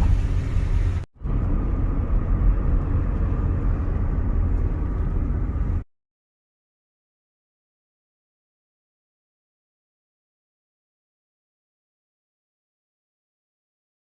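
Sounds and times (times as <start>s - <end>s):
car rumbling in slow traffic: 0.0s - 5.9s.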